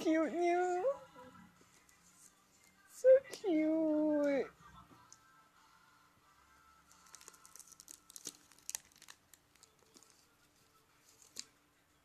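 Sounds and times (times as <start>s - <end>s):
packaging crinkling: 6.9s - 10.3s.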